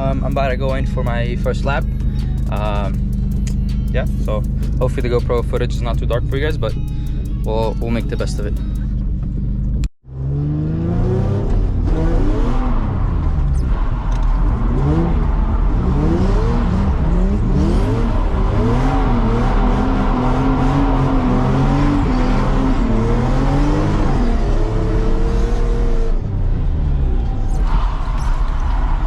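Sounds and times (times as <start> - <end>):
car engine revving hard: 10.1 - 26.8.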